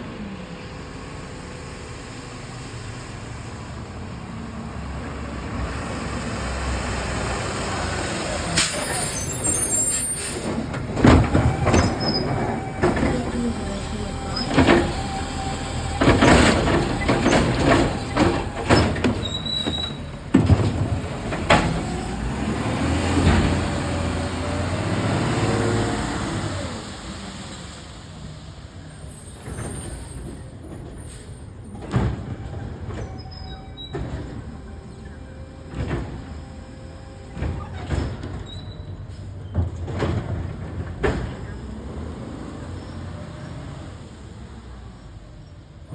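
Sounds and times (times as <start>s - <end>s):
truck engine revving: 0.7s - 29.1s
metal clanks and bangs: 9.6s - 22.4s.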